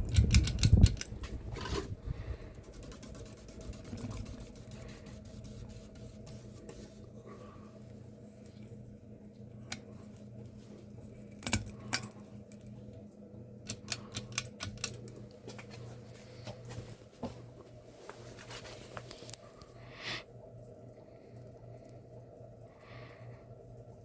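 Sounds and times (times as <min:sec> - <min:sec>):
sharp clicks and light rattles: 0:00.0 - 0:01.4, 0:02.7 - 0:05.1, 0:11.3 - 0:12.8, 0:13.6 - 0:15.6
ceiling fan motor humming: 0:00.0 - 0:24.0.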